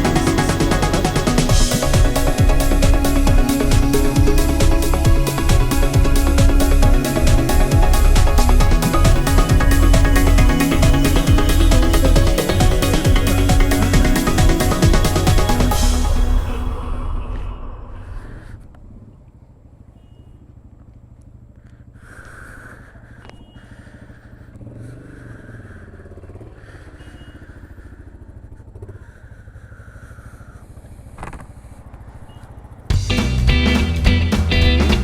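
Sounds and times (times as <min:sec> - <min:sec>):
loud music: 0:00.0 - 0:18.2, 0:32.9 - 0:35.0
motorcycle engine idling: 0:00.0 - 0:35.0.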